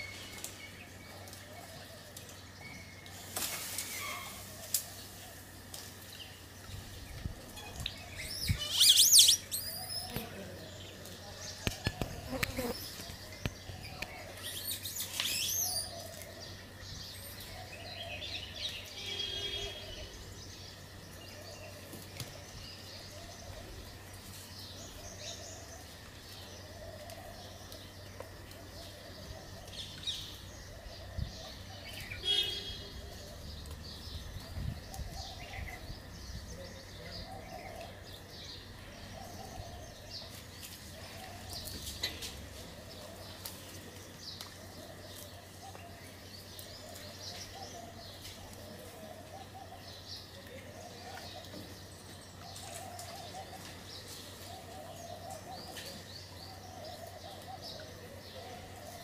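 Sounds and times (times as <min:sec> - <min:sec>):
high bird chirps: 0:08.2 - 0:10.2.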